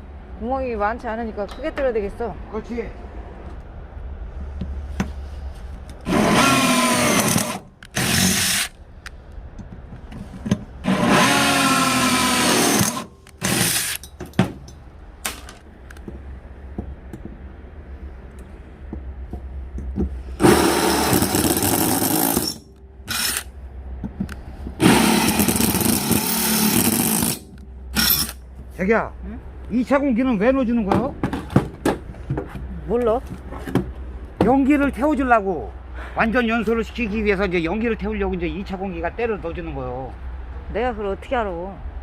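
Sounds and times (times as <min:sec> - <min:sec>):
electric drill boring into steel: 0:06.1 - 0:08.8, 0:10.8 - 0:14.0, 0:20.4 - 0:23.5, 0:24.8 - 0:28.4.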